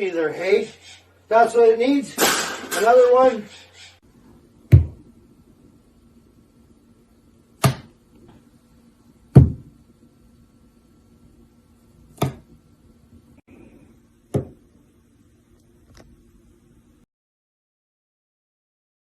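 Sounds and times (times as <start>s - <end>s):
faint steady hum: 0.0s - 17.1s
sharp knocks: 4.7s - 5.0s, 9.4s - 9.7s.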